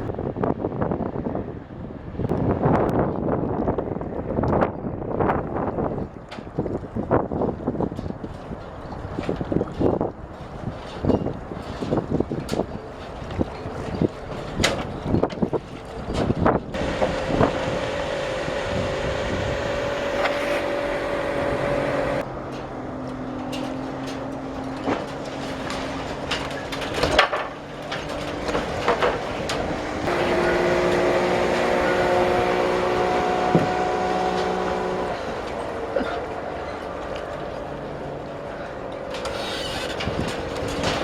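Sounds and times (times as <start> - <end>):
machine humming: 16.8 - 22.2, 29.2 - 39.3.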